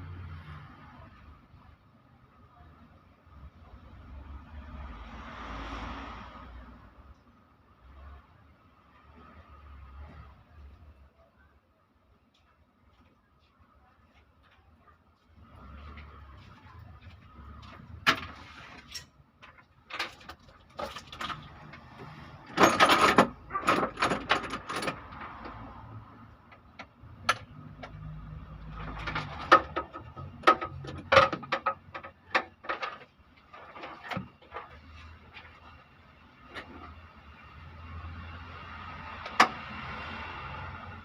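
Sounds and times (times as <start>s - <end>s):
metal tools clanking and clicking: 22.4s - 25.6s
knocks on metal parts: 29.1s - 32.9s.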